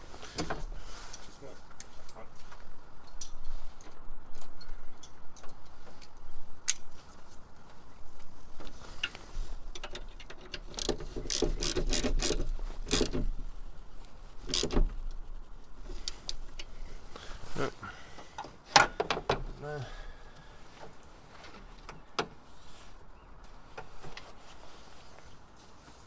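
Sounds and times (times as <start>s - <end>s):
metallic clicks and rattles of tools: 9.0s - 13.4s, 14.4s - 15.2s.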